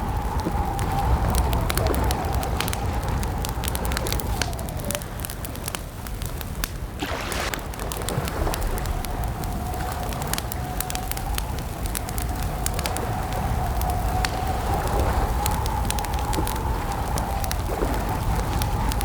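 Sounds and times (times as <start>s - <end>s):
campfire crackling: 0.0s - 19.0s
fire hissing: 0.0s - 19.0s.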